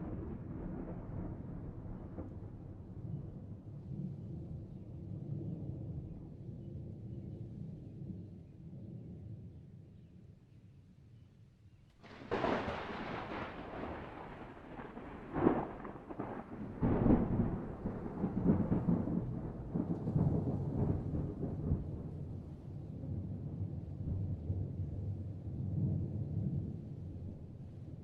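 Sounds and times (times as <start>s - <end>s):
thunder rumbling: 0.0s - 4.7s, 12.0s - 28.0s
thunder cracks: 12.0s - 22.4s.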